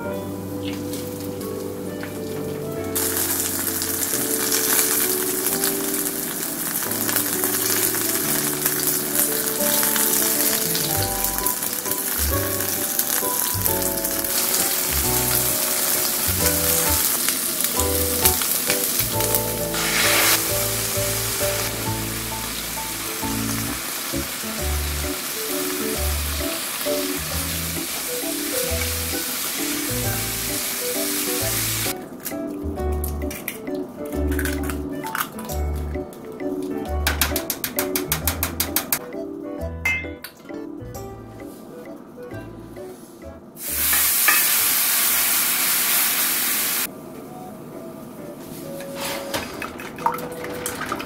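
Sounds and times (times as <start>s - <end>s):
light background music: 0.0s - 44.6s, 46.8s - 51.0s
fish sizzling in frying pan: 3.0s - 32.0s, 43.6s - 46.9s
vegetables sizzling while stir-fried: 3.0s - 32.0s, 43.6s - 46.9s.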